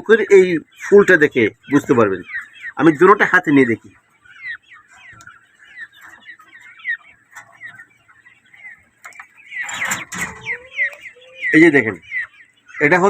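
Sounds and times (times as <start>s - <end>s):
quail chirping: 0.0s - 13.0s
light clicks from handling birds: 8.7s - 11.1s.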